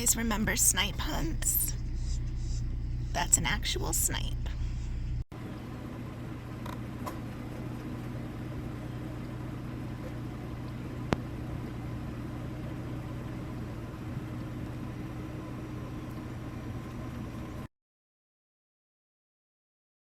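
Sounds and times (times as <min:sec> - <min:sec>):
van engine idling: 0:05.8 - 0:17.6.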